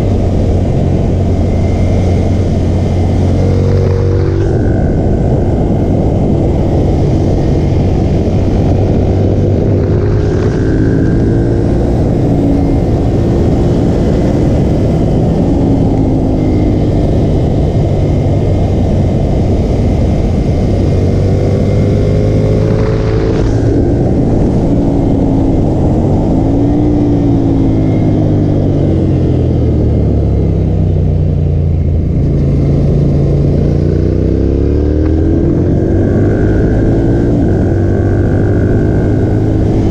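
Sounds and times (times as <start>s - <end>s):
loud rushing noise: 0.0s - 30.0s
motorcycle engine revving: 0.0s - 39.9s.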